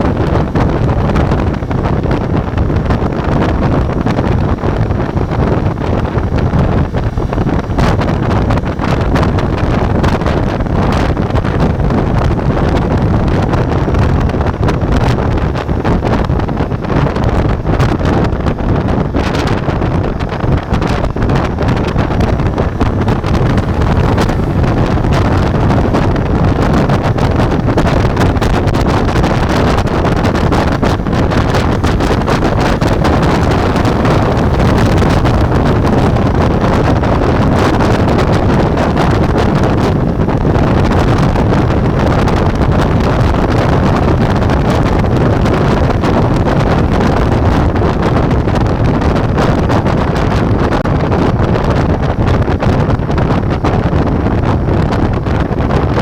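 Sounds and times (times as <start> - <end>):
wind rushing over microphone: 0.0 - 56.0
motorcycle engine running: 20.7 - 47.6.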